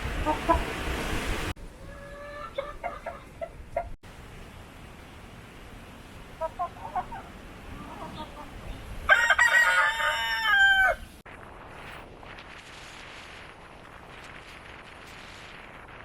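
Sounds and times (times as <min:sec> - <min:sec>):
rooster clucking: 0:00.0 - 0:00.8, 0:01.8 - 0:04.0, 0:06.4 - 0:11.1
rooster crowing: 0:09.1 - 0:11.1.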